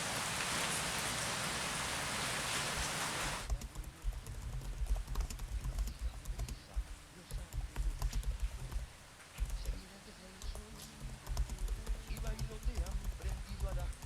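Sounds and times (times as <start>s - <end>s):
heavy rain falling: 0.0s - 3.5s
faint irregular clicks: 2.5s - 9.8s, 10.4s - 14.0s.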